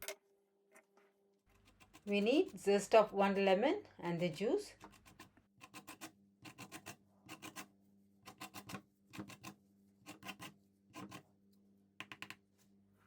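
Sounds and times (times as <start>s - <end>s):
lemon rasping on a grater: 1.5s - 2.9s, 4.2s - 11.2s.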